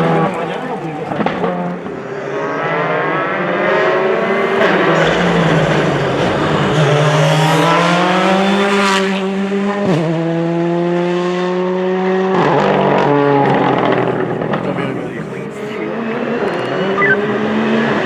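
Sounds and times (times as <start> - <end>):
rally car engine accelerating: 0.0 - 18.0.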